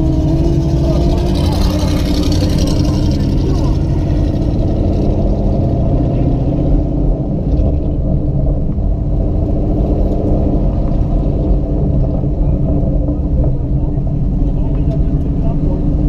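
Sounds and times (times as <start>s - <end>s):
car engine rumbling inside cabin: 0.0s - 16.0s.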